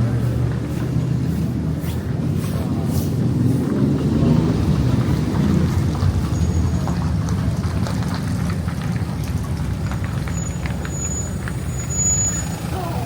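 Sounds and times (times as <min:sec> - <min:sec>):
low street rumble: 0:00.0 - 0:13.0.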